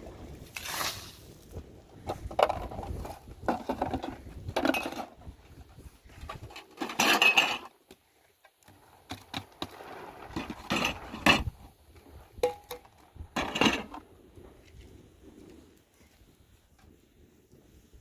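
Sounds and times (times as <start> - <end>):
clattering knocks and clinks: 2.2 - 5.3, 6.2 - 7.7, 12.4 - 14.0.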